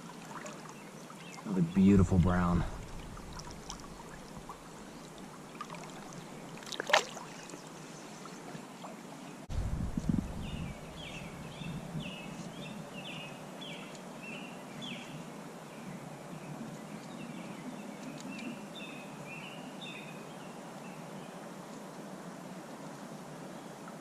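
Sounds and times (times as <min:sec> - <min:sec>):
creek rushing: 0:00.0 - 0:09.7
bird chirping: 0:10.4 - 0:15.1.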